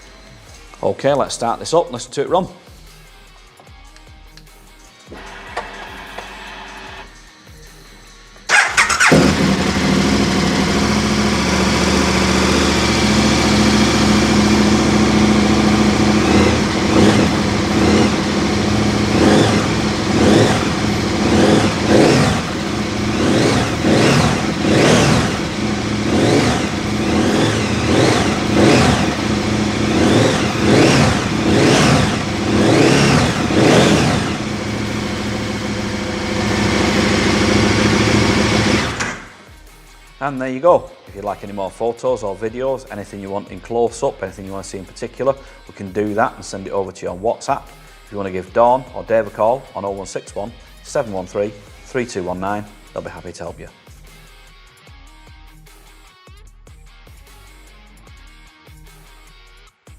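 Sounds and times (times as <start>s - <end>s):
motorcycle engine idling: 8.5s - 39.4s
motorcycle engine revving: 8.5s - 39.4s.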